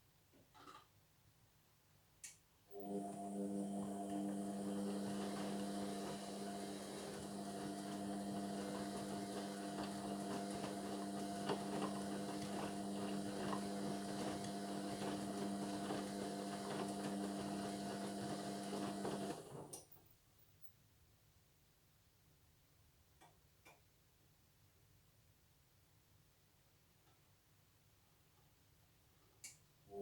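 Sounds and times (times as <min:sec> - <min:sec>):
washing machine humming: 0:02.7 - 0:19.7.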